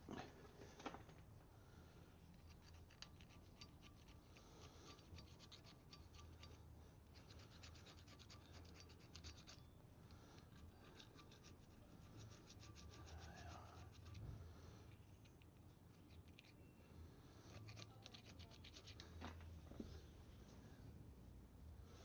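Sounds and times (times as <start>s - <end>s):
hand scraping metal: 2.3s - 14.4s.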